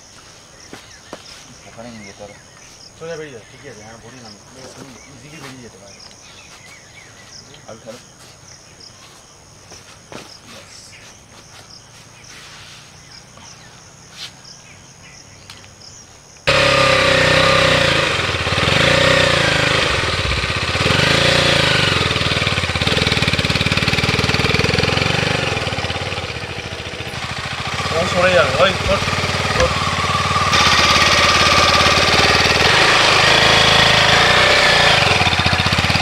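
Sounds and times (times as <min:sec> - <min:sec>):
motorcycle engine revving: 0:16.4 - 0:36.0.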